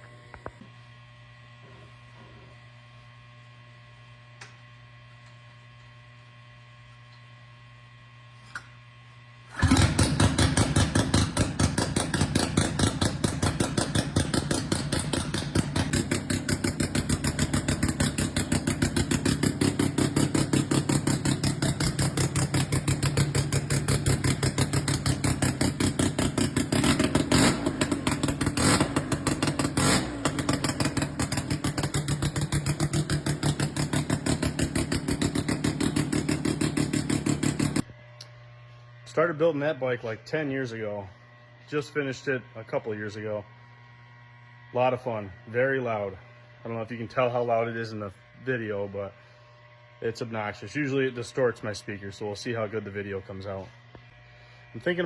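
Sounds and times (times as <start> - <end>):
rotary motorcycle engine running: 9.6 - 38.0.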